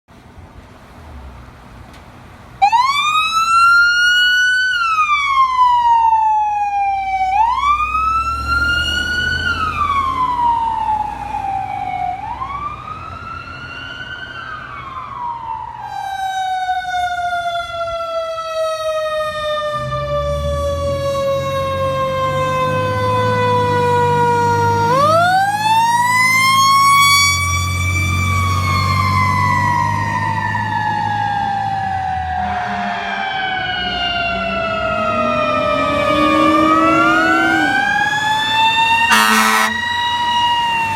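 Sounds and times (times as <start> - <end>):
mechanical siren wailing: 2.6 - 40.9
heavy truck engine rumbling: 19.8 - 40.9.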